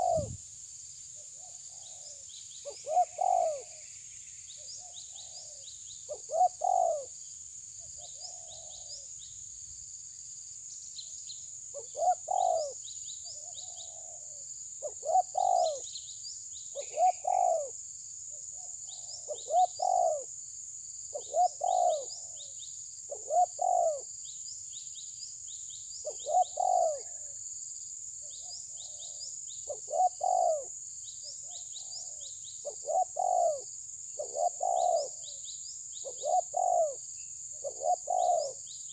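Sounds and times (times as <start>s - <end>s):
high chirps of small birds: 0.0s - 0.4s, 1.2s - 7.1s, 11.0s - 17.7s, 18.6s - 20.3s, 21.1s - 27.4s, 28.2s - 38.9s
steady high-pitched hiss: 0.0s - 38.9s.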